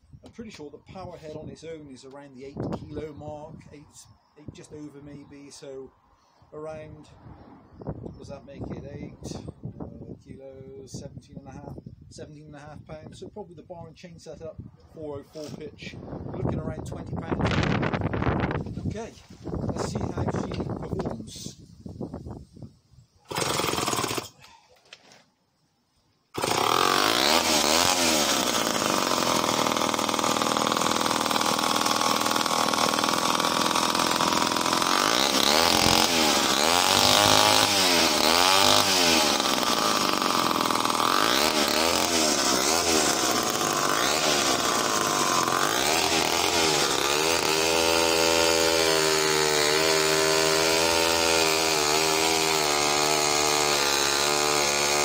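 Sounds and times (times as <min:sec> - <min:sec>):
chainsaw cutting wood: 0:23.2 - 0:25.1, 0:26.3 - 0:55.0.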